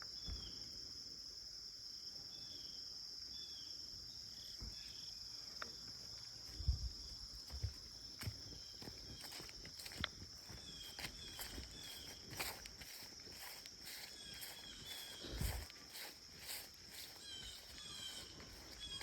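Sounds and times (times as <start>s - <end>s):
insects trilling: 0.0s - 19.0s
soft footsteps: 6.4s - 19.0s.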